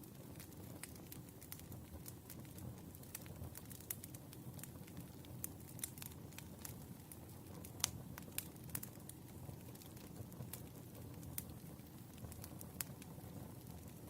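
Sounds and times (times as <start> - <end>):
firewood crackling and popping: 0.0 - 14.0.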